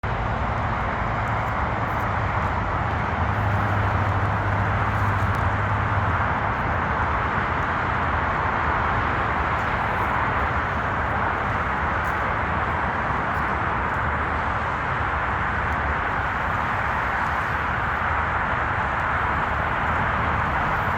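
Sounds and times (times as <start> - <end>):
highway traffic drone: 0.0 - 20.9.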